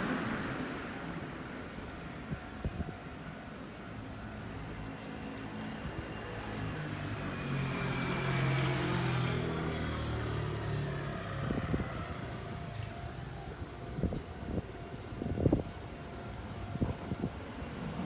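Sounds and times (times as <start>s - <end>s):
motor vehicle passing by: 6.5s - 12.7s.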